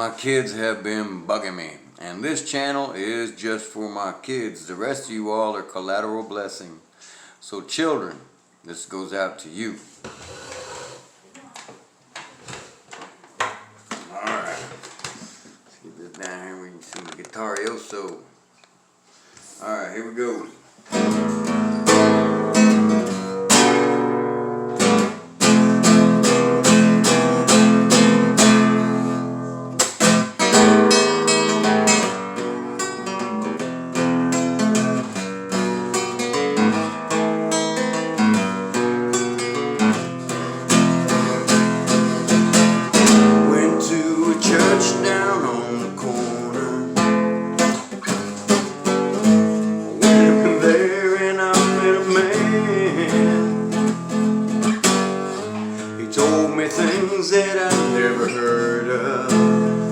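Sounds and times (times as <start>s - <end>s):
acoustic guitar strumming and picking: 13.4s - 14.8s, 20.1s - 59.9s.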